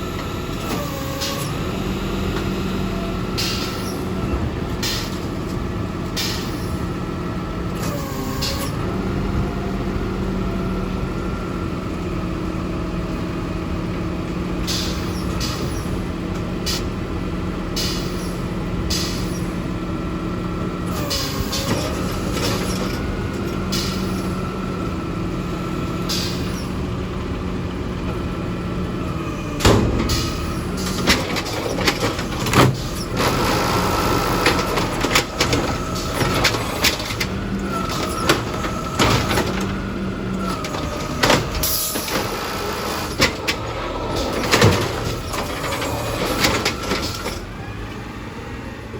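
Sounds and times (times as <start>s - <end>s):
garbage truck hum and whine: 0.0s - 48.9s
loud bangs and clunks: 29.5s - 47.5s.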